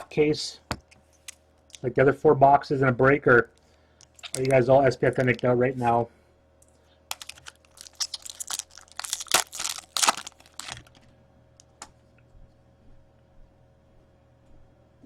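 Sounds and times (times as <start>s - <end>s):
foil wrapper crinkling and tearing: 4.0s - 5.5s, 7.1s - 11.0s.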